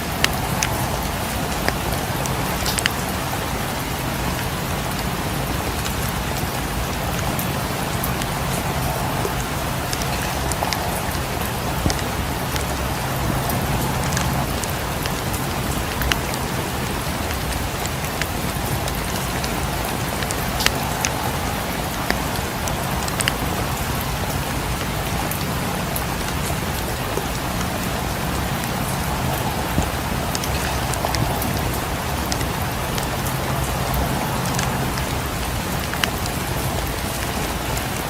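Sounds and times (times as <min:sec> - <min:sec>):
sharp ticks and pops: 0:00.0 - 0:05.0, 0:05.6 - 0:38.0
steady rain: 0:00.0 - 0:38.0.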